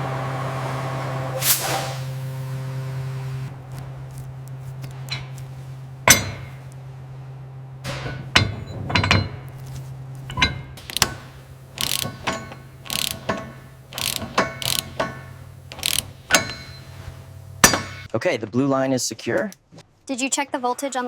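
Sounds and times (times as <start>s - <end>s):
steady low hum: 0.0s - 18.1s
hand tools clicking on metal: 4.8s - 6.8s, 7.9s - 18.1s.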